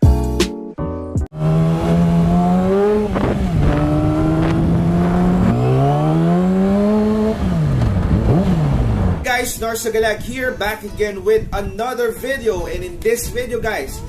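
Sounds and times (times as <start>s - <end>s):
music: 0.0s - 1.4s
motorcycle engine accelerating: 1.3s - 9.3s.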